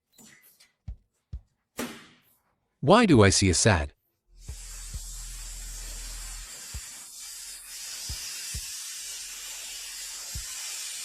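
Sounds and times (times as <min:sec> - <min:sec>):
hissing spray: 0:04.4 - 0:11.0.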